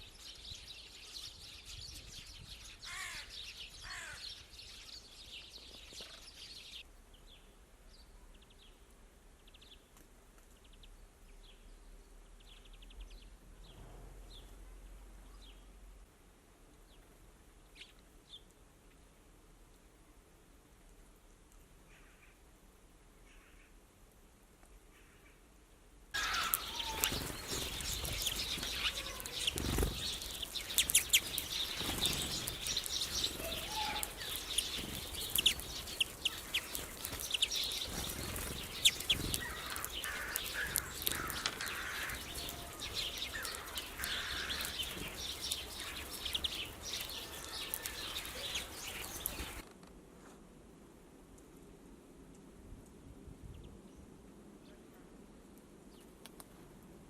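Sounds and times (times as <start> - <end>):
small birds chirping: 0.0 - 16.0, 16.8 - 19.2, 26.2 - 49.7
wings fluttering: 26.2 - 49.9.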